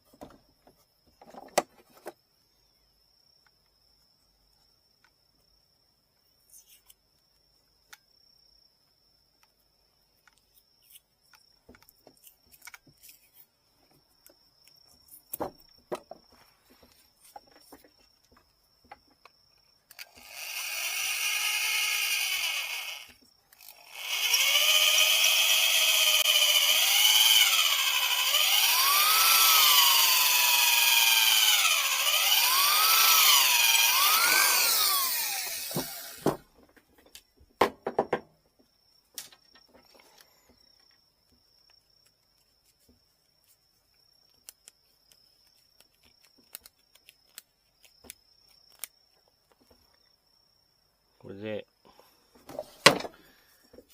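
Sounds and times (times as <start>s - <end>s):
electric drill whining: 19.9s - 36.4s.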